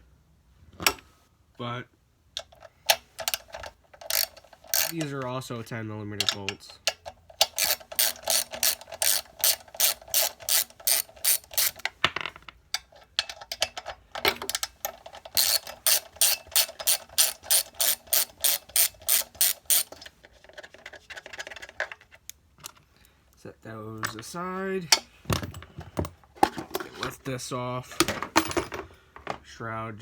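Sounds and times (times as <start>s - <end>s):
socket ratchet clicking: 2.4s - 5.2s, 6.2s - 11.9s, 14.5s - 20.0s.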